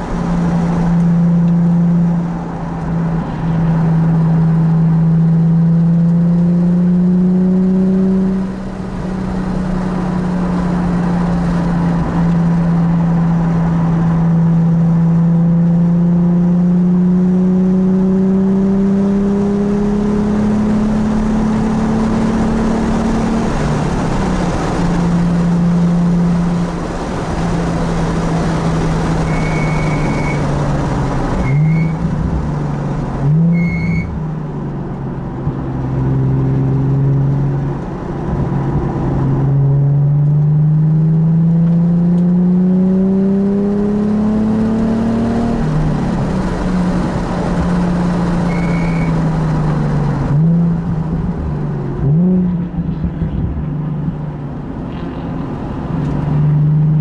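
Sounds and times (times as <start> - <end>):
car engine accelerating: 0.0 - 57.0
tyre squeals: 29.2 - 30.5, 31.4 - 32.0, 33.4 - 34.2, 48.5 - 49.2.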